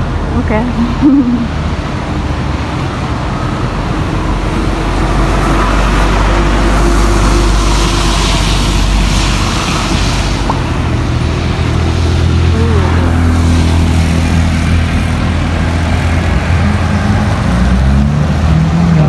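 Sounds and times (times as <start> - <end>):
vehicle engine rumble: 0.0 - 19.0
tyre hiss on wet road: 4.6 - 15.0.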